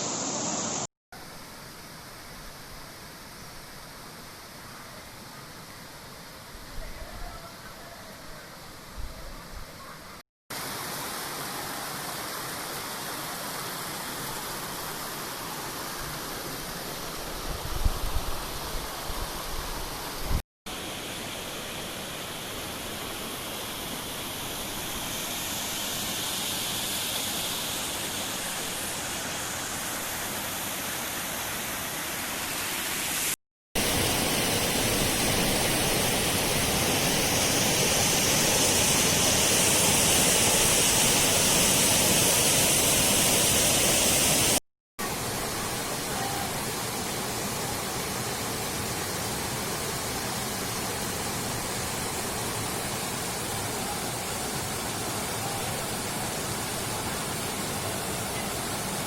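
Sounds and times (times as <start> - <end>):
waterfall rushing: 0.0 - 0.9, 20.8 - 59.0.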